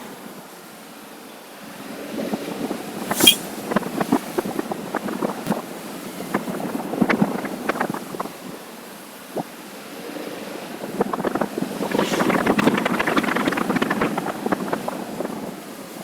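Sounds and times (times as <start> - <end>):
wind noise on microphone: 10.7 - 16.0.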